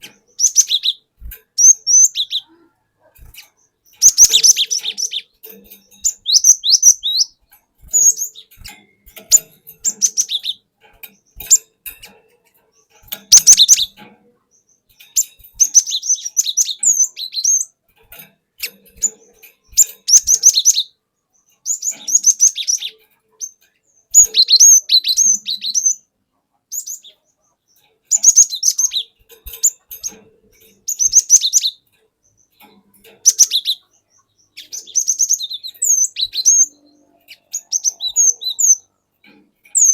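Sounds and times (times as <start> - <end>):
bird chirping and whistling: 0.3 - 1.0, 1.6 - 2.5, 3.9 - 10.6, 13.3 - 14.0, 15.1 - 17.7, 19.7 - 20.9, 21.6 - 26.1, 26.7 - 27.1, 28.1 - 29.8, 30.9 - 31.8, 33.2 - 33.8, 34.6 - 38.9.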